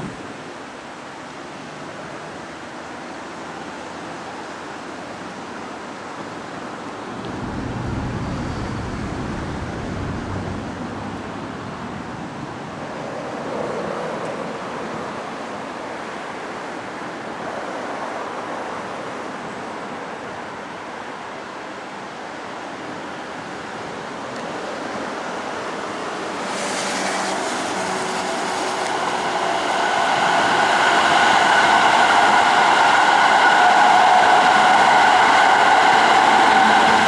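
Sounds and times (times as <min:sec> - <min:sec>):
train wheel-on-rail rush: 0:00.0 - 0:37.0
train motor whine: 0:07.1 - 0:11.4.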